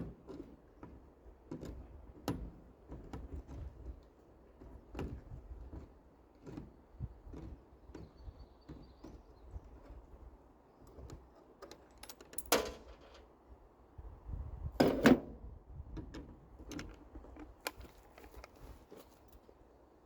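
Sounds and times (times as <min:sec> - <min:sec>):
metal hardware clattering: 0:11.6 - 0:13.3
metal hardware clicking and clinking: 0:11.6 - 0:13.3.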